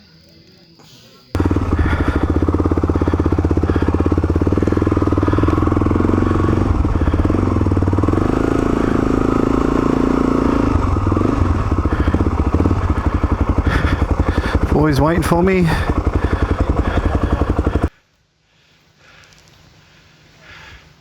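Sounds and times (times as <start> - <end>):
motorcycle engine idling: 1.4 - 18.0.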